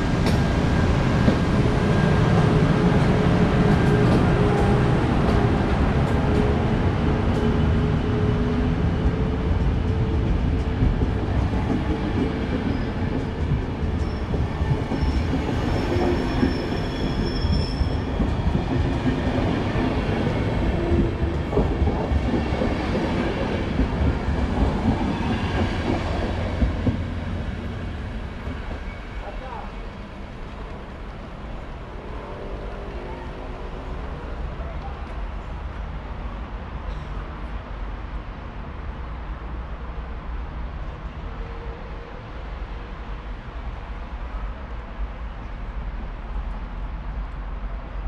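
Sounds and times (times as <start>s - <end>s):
high wheel squeal: 15.0s - 18.1s.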